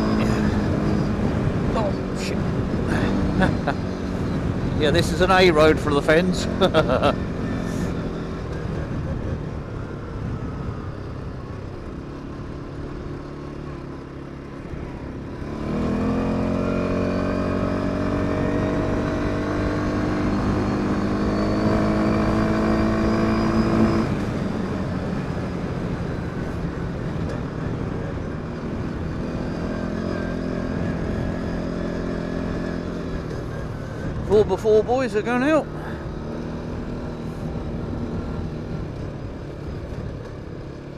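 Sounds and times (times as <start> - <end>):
quad engine revving: 15.4 - 24.2.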